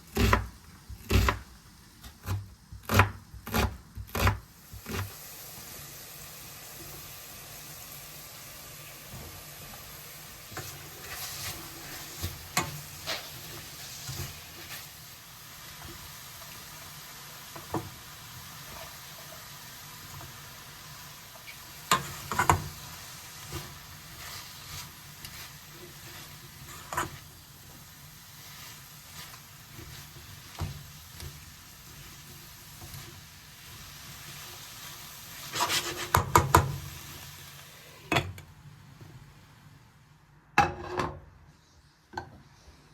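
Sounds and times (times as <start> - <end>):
food sizzling in a frying pan: 4.2 - 38.4
utensil scraping a pan: 10.5 - 16.6, 21.4 - 36.7.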